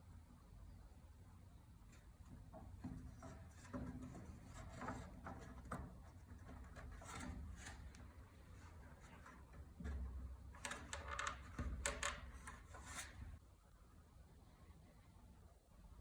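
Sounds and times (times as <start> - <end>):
wood rubbing and knocking: 2.0 - 13.4.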